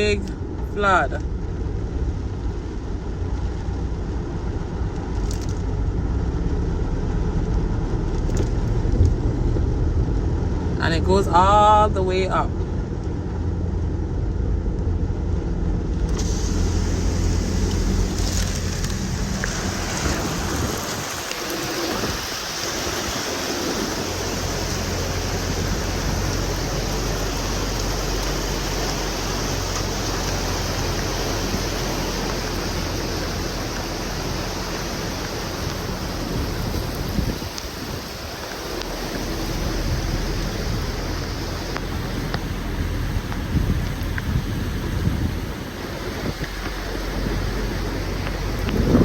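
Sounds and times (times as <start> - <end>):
engine and tyres humming: 0.0 - 49.0
heavy rain: 0.0 - 49.0
water rushing under car: 0.0 - 49.0.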